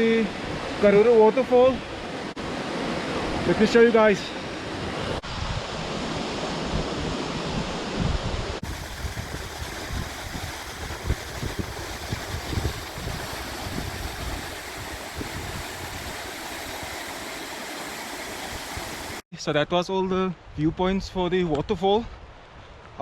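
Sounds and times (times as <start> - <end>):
wind buffeting microphone: 4.8 - 17.3
waterfall roaring: 8.6 - 19.2.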